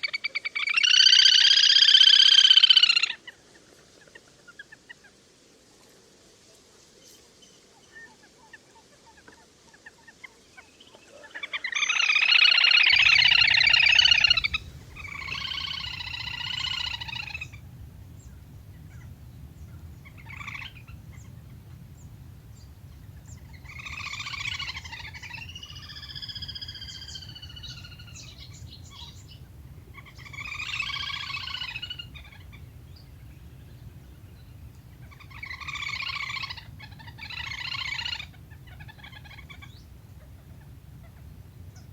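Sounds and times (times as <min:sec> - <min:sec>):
loud trilled bird calls: 0:00.0 - 0:03.2, 0:11.4 - 0:41.9
steady low hum: 0:12.9 - 0:41.9.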